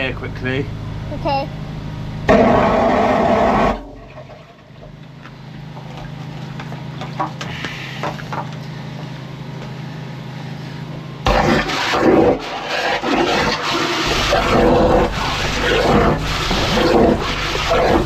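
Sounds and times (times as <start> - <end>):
machine engine running: 0.0 - 8.0, 8.6 - 18.0
water jetting rush: 11.3 - 18.0.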